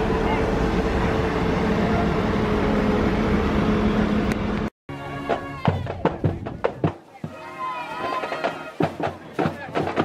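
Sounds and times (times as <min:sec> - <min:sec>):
voices: 0:00.0 - 0:00.8, 0:05.4 - 0:10.0
engine humming: 0:00.0 - 0:10.0.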